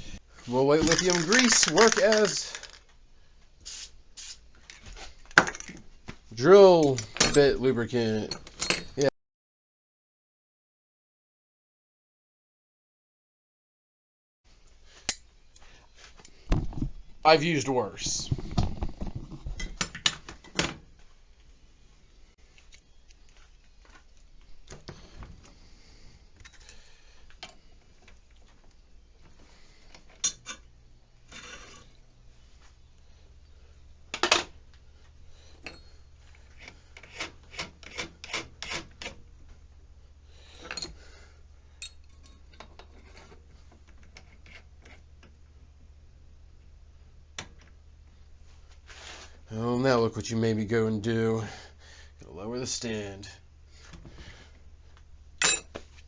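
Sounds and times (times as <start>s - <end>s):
metal scraping and rubbing: 31.3s - 32.0s.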